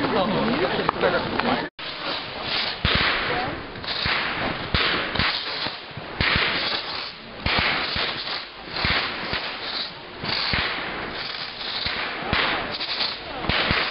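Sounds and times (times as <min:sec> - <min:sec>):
fireworks bangs: 0:01.8 - 0:13.9
fireworks hissing crackle: 0:01.8 - 0:13.9.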